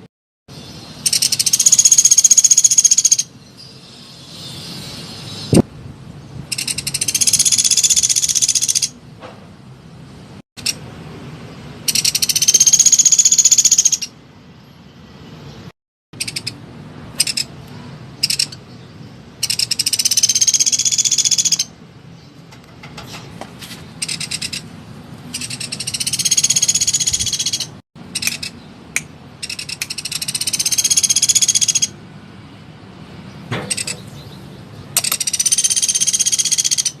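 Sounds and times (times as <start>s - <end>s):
woodpecker trilling calls: 1.0s - 3.3s, 6.5s - 9.0s, 11.9s - 14.2s, 16.2s - 16.6s, 17.2s - 17.6s, 18.2s - 18.7s, 19.4s - 21.8s, 24.0s - 24.7s, 25.3s - 28.6s, 29.4s - 32.0s, 33.7s - 34.4s, 35.0s - 37.0s.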